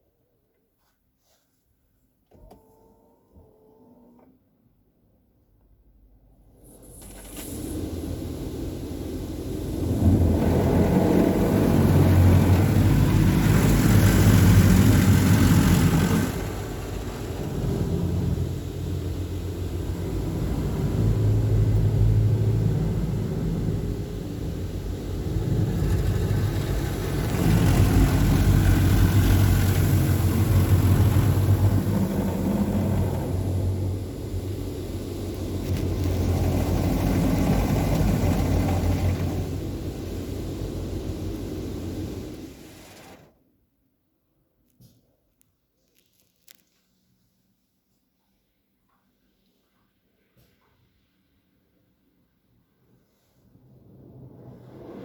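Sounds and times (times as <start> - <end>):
car wash machine rumbling: 6.6 - 43.3
high-pressure water spraying: 7.1 - 43.2
low pump hum: 7.6 - 43.1.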